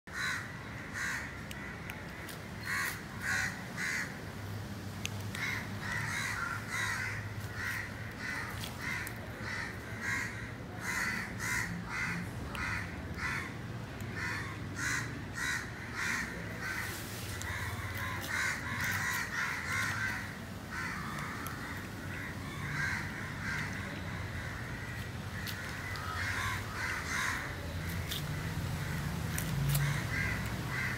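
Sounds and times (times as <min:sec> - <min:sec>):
birds calling: 0:14.1 - 0:30.9.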